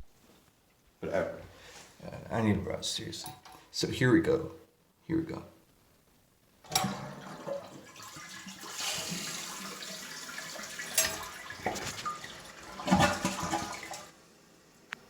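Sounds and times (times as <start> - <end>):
toilet flush click: 6.7 - 14.2
toilet water rushing: 6.7 - 14.6.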